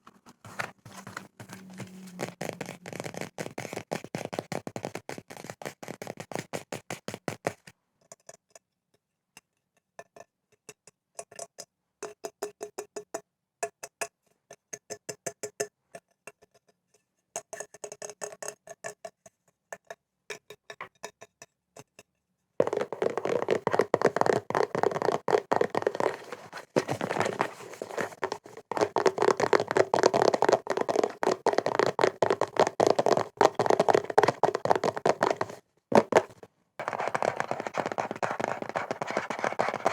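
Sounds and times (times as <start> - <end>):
fingers tapping on objects: 0.8 - 7.7, 22.6 - 39.9.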